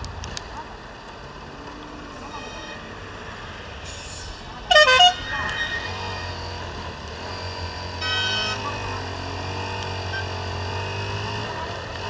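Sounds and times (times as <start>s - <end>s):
road and wind noise: 0.0s - 12.0s
vehicle horn honking: 2.2s - 3.0s, 4.7s - 6.5s, 8.0s - 8.9s
motorcycle engine running: 5.6s - 12.0s.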